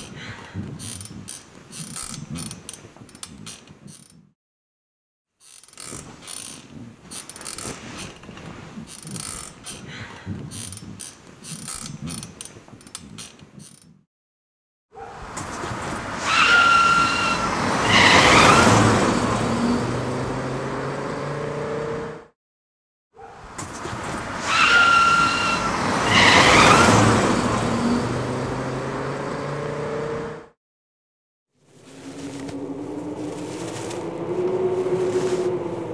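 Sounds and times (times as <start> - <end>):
bed springs squeaking and creaking: 0.0 - 4.4, 5.4 - 14.0
rubber squealing screech: 0.7 - 4.2, 5.4 - 12.3, 15.0 - 19.8, 23.3 - 28.0.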